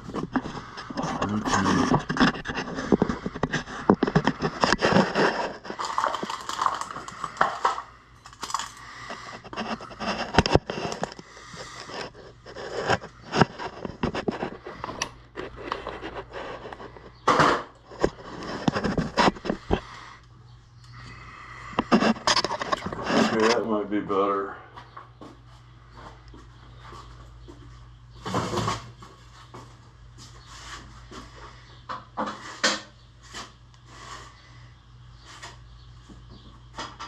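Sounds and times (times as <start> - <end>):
scraping and rustling handling: 0.0 - 20.1, 21.8 - 23.7.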